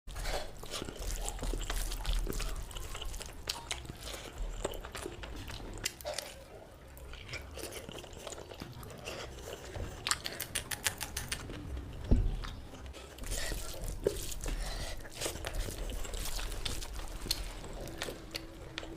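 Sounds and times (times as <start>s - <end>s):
person chewing and smacking: 0.1s - 18.9s
wet mouth clicks and crunches: 7.3s - 12.6s.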